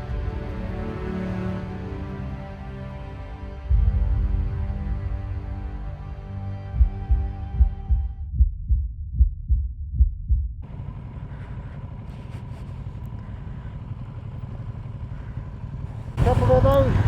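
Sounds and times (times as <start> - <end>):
throbbing bass beat: 3.5 - 10.7
motorcycle engine running: 3.7 - 5.1, 10.6 - 17.0.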